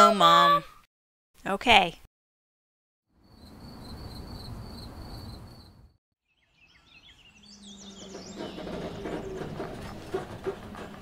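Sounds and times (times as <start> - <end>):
crickets chirping: 3.2 - 6.0
birds chirping and singing: 6.3 - 10.9
low engine hum: 6.9 - 11.0.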